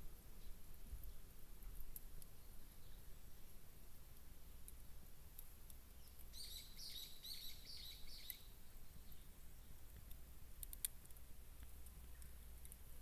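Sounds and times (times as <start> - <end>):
small bird chirping: 2.3 - 3.2, 5.9 - 9.9
sharp clicks: 10.0 - 12.8.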